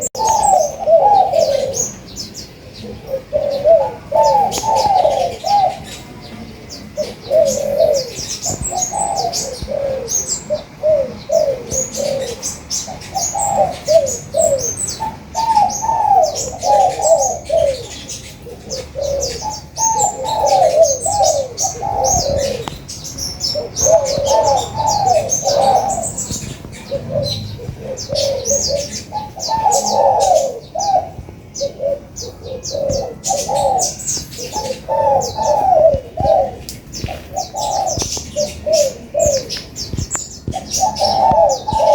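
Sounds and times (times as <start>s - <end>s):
doves cooing: 0.0s - 41.9s
small birds chirping: 0.0s - 41.9s.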